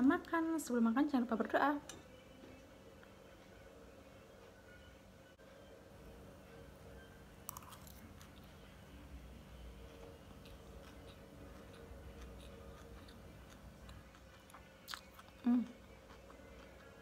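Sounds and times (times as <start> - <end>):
quiet chewing: 9.8 - 17.0.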